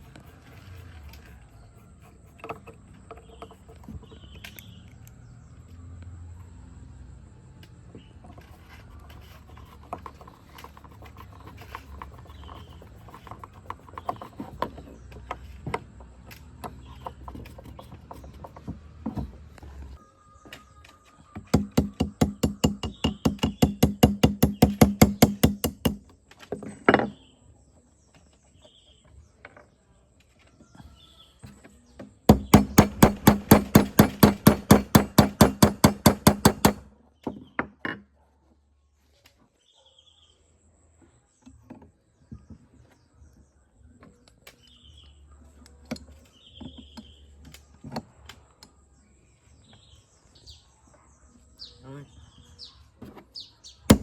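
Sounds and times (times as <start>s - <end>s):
faint bird chirps: 0.0s - 18.4s
rapid hammering: 21.6s - 26.0s, 32.3s - 36.9s.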